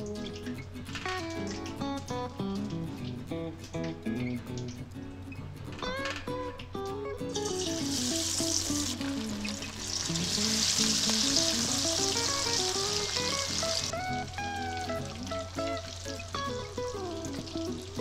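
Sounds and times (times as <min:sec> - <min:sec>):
oil sizzling while deep-frying: 0:00.0 - 0:03.2, 0:07.3 - 0:18.0
plucked background music: 0:00.0 - 0:18.0.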